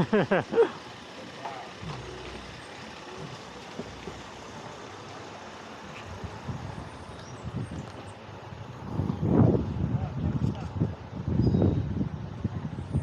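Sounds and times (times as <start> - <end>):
wind rushing over microphone: 8.6 - 13.0.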